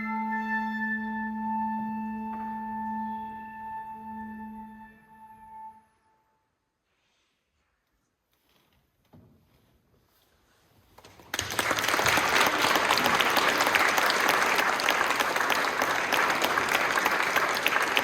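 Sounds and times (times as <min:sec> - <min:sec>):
audience applauding: 0:11.1 - 0:18.0.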